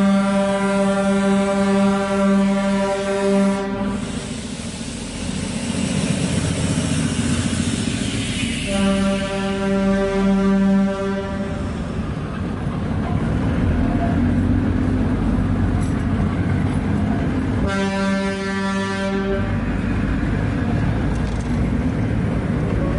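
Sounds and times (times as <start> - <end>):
train horn blast: 0.0 - 4.2, 8.6 - 11.8, 17.6 - 19.8
train coaches rumbling and rattling: 0.0 - 22.9.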